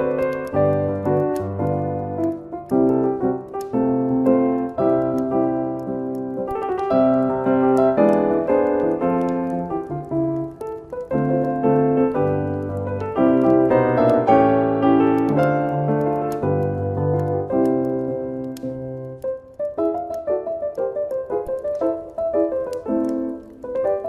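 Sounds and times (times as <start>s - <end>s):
fireplace crackling: 0.0s - 24.0s
slow solo piano music: 0.0s - 24.0s.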